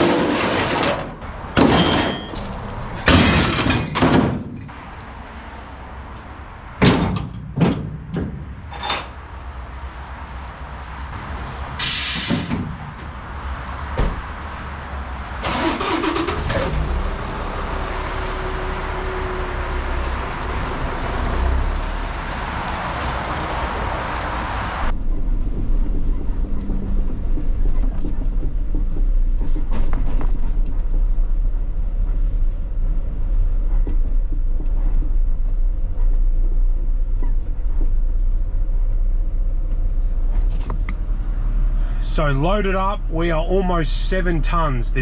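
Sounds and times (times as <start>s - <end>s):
sharp bangs and clanks: 0.0s - 4.9s, 6.2s - 9.3s
dump truck engine running: 0.0s - 10.0s, 11.2s - 45.0s
air hiss: 11.4s - 12.7s.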